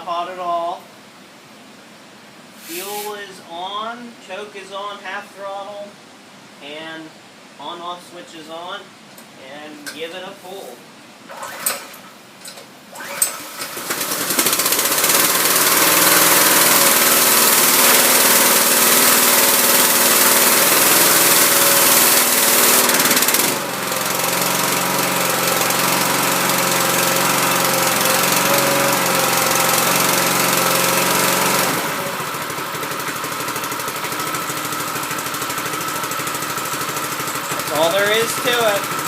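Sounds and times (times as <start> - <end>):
recoil starter pull: 11.3 - 12.0, 12.9 - 39.0
small gas engine running: 12.9 - 39.0.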